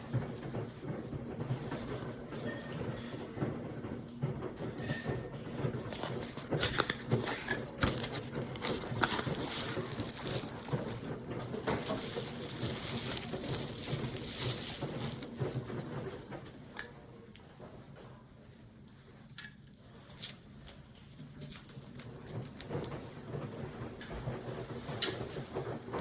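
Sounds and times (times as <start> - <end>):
rustling: 5.4 - 16.8.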